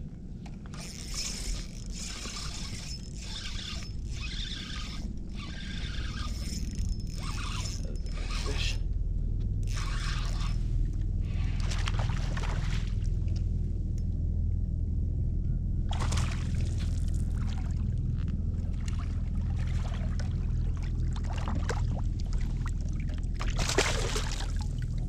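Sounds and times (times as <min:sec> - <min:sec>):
steady low rumble: 0:00.0 - 0:25.0
fish splashing at water surface: 0:15.9 - 0:17.8, 0:23.4 - 0:24.8.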